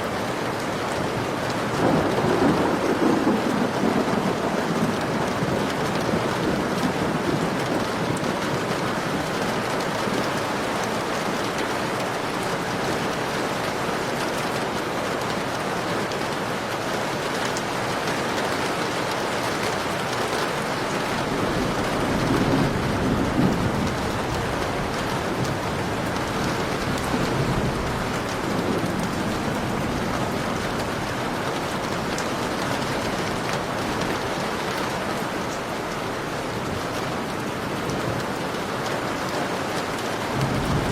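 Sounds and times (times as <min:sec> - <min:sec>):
heavy rain pouring: 0:00.0 - 0:40.9
thunder rumbling: 0:01.7 - 0:13.9, 0:20.5 - 0:35.2, 0:40.3 - 0:40.9.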